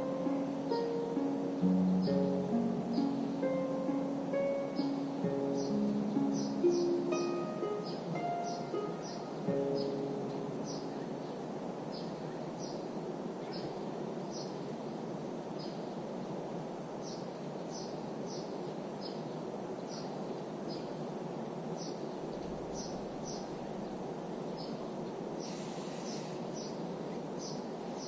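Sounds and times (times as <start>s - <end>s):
small bird chirping: 0.0s - 14.6s, 21.8s - 28.0s.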